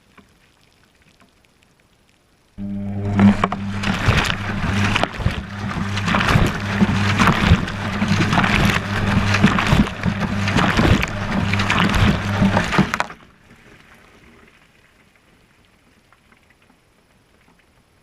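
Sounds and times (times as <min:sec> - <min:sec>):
washing machine motor hum: 0:02.6 - 0:13.1
water sloshing: 0:02.6 - 0:14.9.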